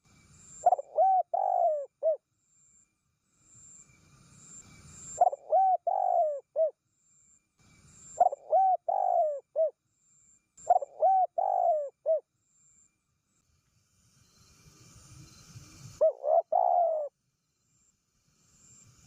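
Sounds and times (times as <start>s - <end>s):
dove cooing: 0.6s - 2.2s, 5.2s - 6.8s, 8.2s - 9.7s, 10.6s - 12.2s, 16.0s - 17.1s.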